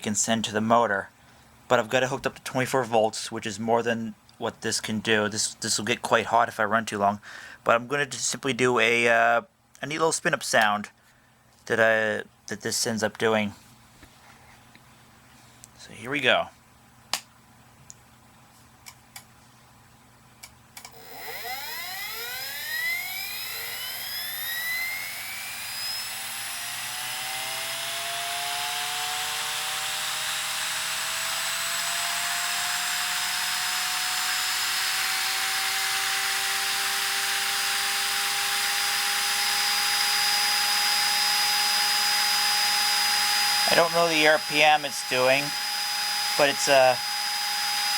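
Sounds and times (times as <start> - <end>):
spindle motor whine rising: 20.9 - 47.9.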